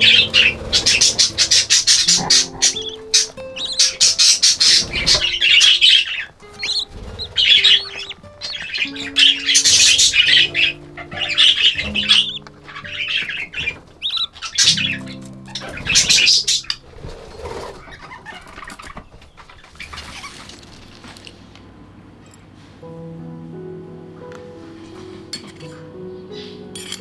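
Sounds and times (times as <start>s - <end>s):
soft background music: 0.0s - 18.1s, 20.1s - 27.0s
budgerigars chattering and squawking: 0.0s - 20.5s.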